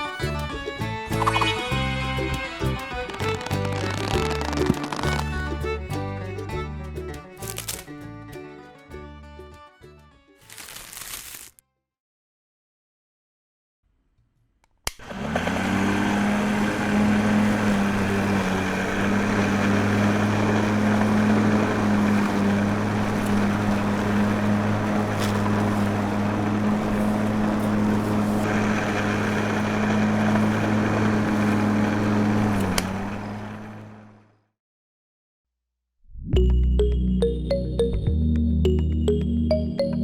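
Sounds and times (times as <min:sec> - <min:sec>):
small motor humming: 0:15.0 - 0:34.1.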